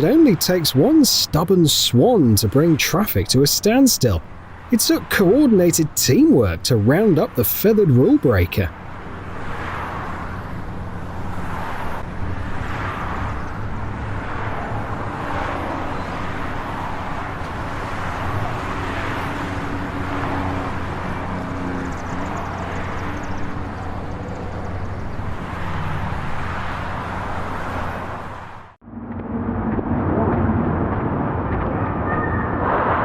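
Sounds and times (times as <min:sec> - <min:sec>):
outdoor road noise: 0:00.0 - 0:33.0
vehicle engine running: 0:17.4 - 0:28.1.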